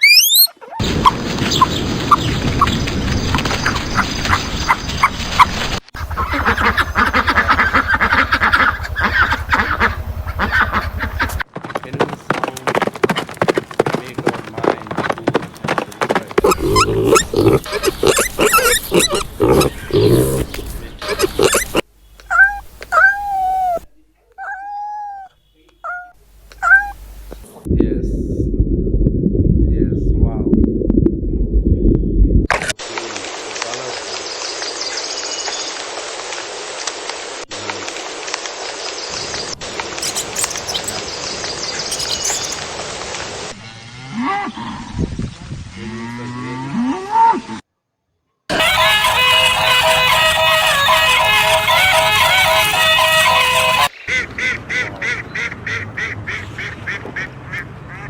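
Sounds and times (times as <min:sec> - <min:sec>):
cattle mooing: 0:16.4 - 0:20.6
faint high chirps: 0:41.9 - 0:42.6.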